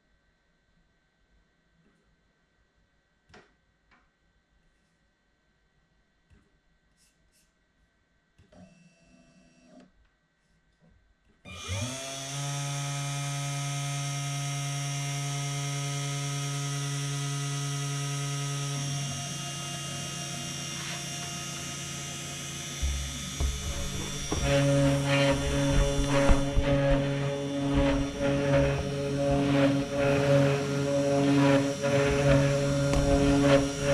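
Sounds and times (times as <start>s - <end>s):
cnc router spindle whine: 11.5s - 33.9s
router bit carving wood rattling: 11.5s - 33.9s.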